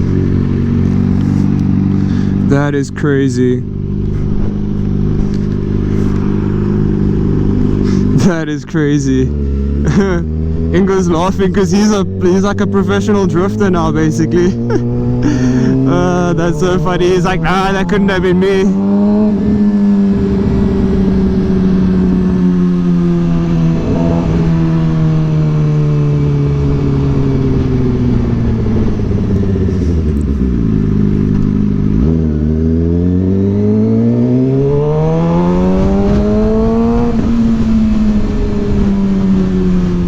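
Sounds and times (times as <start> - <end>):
motorcycle engine revving: 0.0 - 40.0
wind on microphone: 14.8 - 32.2, 34.1 - 40.0.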